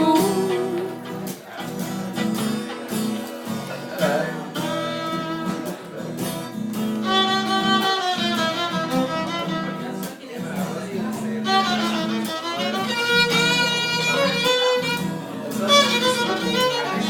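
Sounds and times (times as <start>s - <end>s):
guitar playing: 0.0s - 17.0s
fiddle bowed notes: 4.3s - 5.9s, 6.9s - 9.9s, 11.4s - 17.0s.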